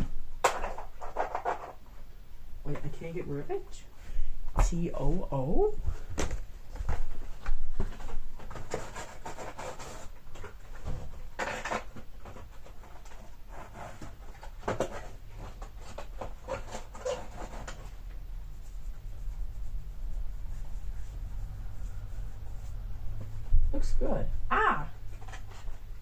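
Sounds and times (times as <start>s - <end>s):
rubbing and scratching strokes: 6.7s - 24.2s
low steady hum: 12.2s - 26.0s.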